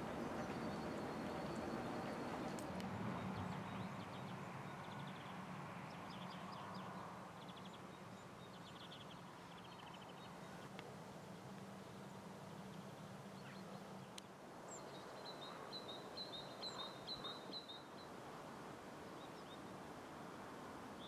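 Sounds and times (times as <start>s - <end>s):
small birds chirping: 0.0s - 2.6s, 12.8s - 18.1s.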